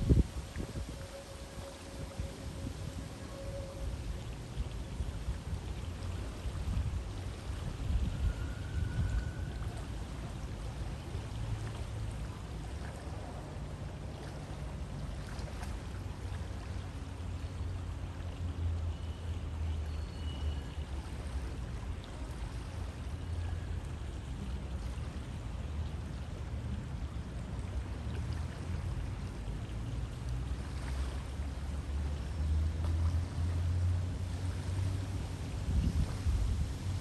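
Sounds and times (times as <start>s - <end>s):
river water rushing: 0.0s - 37.0s
faint high chirp: 19.8s - 20.8s.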